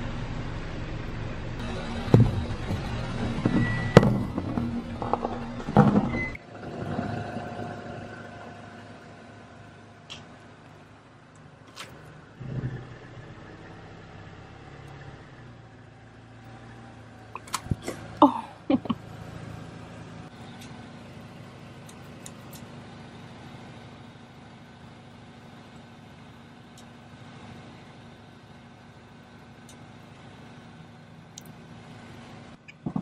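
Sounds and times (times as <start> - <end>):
car engine idling: 0.0 - 33.0
sharp clicks and knocks: 1.6 - 6.4, 17.4 - 18.1, 32.6 - 33.0
short squeal bending in pitch: 3.2 - 4.0.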